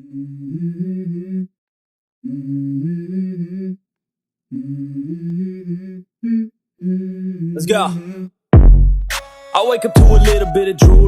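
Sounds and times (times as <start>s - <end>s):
person humming a song: 0.0s - 1.6s, 2.2s - 3.8s, 4.5s - 8.3s, 9.8s - 11.0s.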